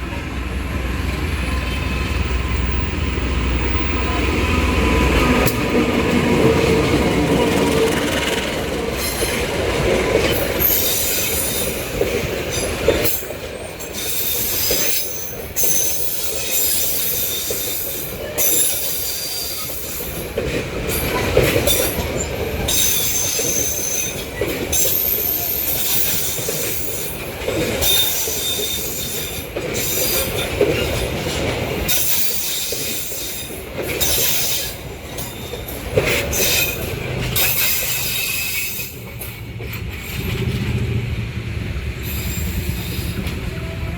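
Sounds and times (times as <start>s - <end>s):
wagon wheels squealing: 2.2s - 40.5s, 42.0s - 43.3s
wheels clattering over rail joints: 4.9s - 41.0s.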